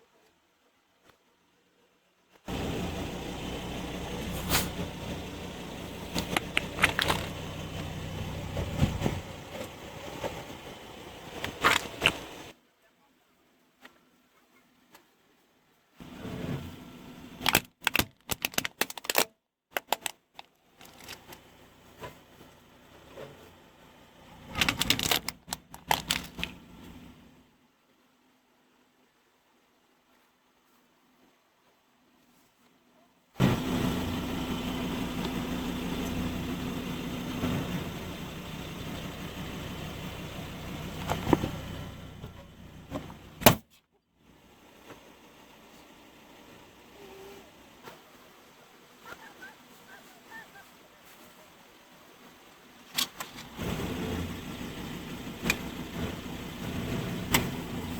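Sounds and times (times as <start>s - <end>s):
car engine running: 2.5s - 12.5s, 20.8s - 27.4s, 33.4s - 43.5s, 53.5s - 57.9s
tyre rolling noise: 4.0s - 12.5s
brittle objects cracking under tyre: 6.1s - 7.4s, 17.4s - 21.5s, 24.5s - 26.6s.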